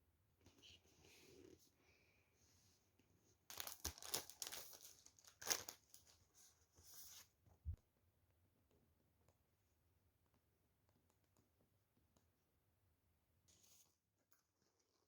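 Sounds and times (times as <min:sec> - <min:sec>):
crinkling and tearing: 0:03.5 - 0:06.1.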